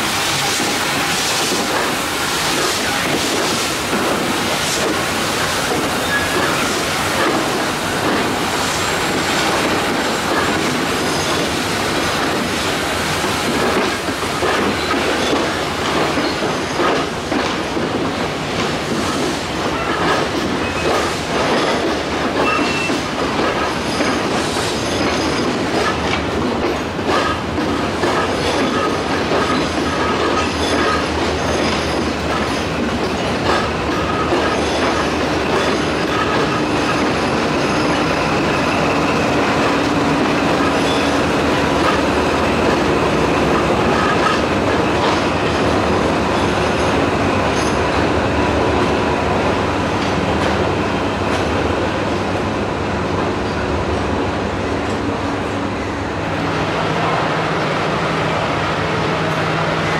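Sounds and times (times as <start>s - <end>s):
train wheels clicking over rail joints: 0.0s - 51.7s
wheel squeal: 22.4s - 23.0s, 40.7s - 41.2s.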